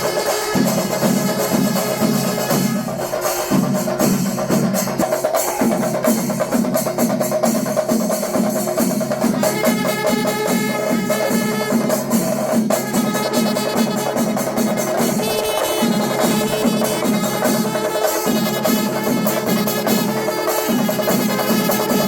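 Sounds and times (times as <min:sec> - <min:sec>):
percussion ensemble drumming: 0:00.0 - 0:22.0
high held tone: 0:10.8 - 0:18.4.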